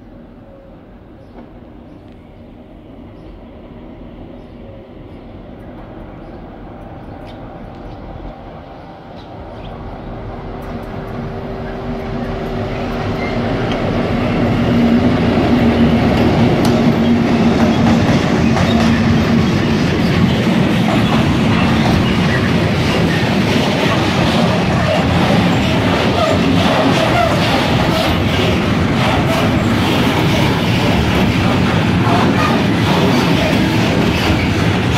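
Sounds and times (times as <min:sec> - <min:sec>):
diesel locomotive engine drone: 0:00.0 - 0:34.9
train wheels on rails: 0:04.3 - 0:34.9.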